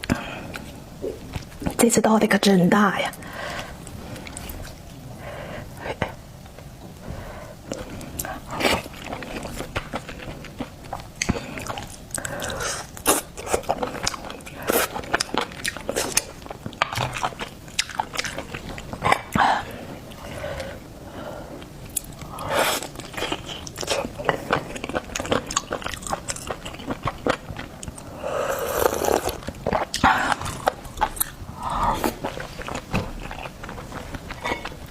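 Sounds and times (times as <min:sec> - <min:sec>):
biting and chewing seafood: 0:07.7 - 0:19.7, 0:21.6 - 0:34.9.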